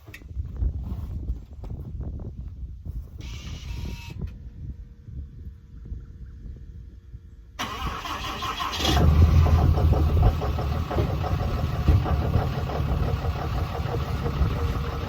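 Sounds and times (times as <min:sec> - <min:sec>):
diesel engine idling: 0:07.6 - 0:15.0
starter motor cranking: 0:07.6 - 0:15.0.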